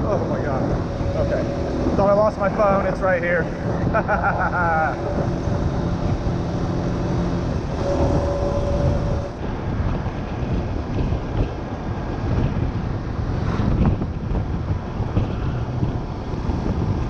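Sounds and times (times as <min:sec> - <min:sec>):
motorbike engine running: 0:00.0 - 0:09.4
wind buffeting microphone: 0:00.0 - 0:17.0.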